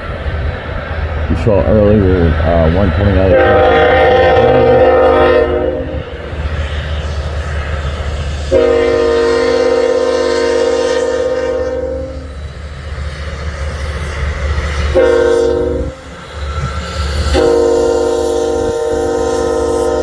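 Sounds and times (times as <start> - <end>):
low rumble of locomotives: 0.0 - 20.0
locomotive air horn blasts: 3.2 - 6.1, 8.5 - 12.3, 15.0 - 16.0, 17.3 - 20.0.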